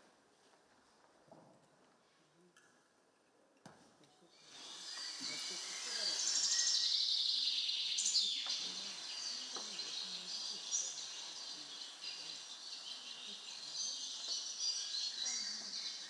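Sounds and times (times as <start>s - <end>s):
recorded birdsong chirps: 4.4s - 16.0s.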